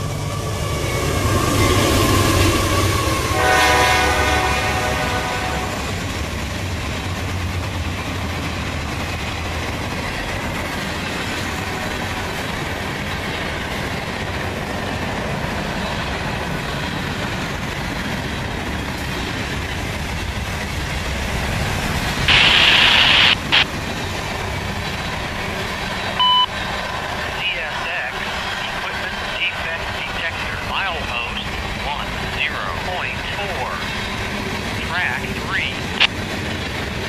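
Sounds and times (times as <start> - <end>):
freight train wheels rumbling: 0.0 - 37.0
loud hiss: 22.3 - 23.6
short beep: 26.2 - 26.5.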